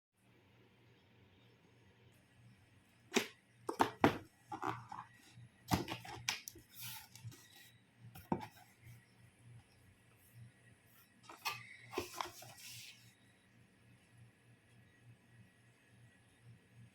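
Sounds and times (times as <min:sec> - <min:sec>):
cardboard packaging knocks and clicks: 0:03.1 - 0:05.1, 0:05.7 - 0:06.5
cardboard rustle: 0:11.3 - 0:13.1.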